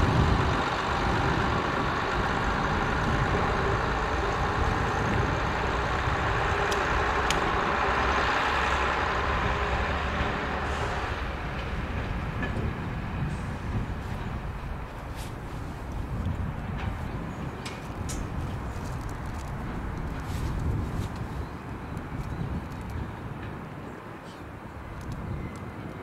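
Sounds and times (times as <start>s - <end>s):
heavy diesel engine running: 0.0s - 21.6s
sharp ticks: 6.0s - 8.1s.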